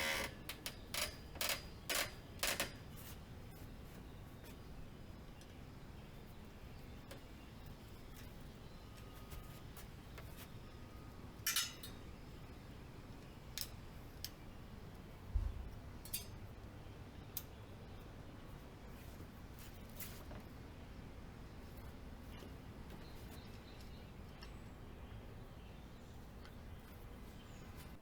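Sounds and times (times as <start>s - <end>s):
metallic clicks of hand tools: 11.4s - 12.0s, 16.0s - 16.4s.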